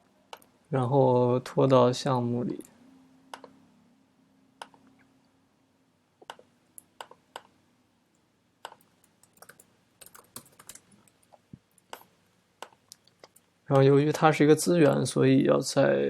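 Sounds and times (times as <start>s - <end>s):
computer mouse and keyboard clicks: 8.6s - 13.9s.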